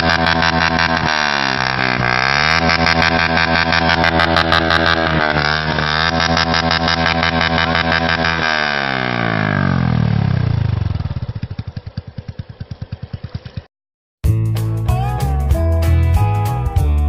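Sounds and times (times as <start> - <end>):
motorcycle engine revving: 0.0 - 13.7
music: 14.2 - 17.0.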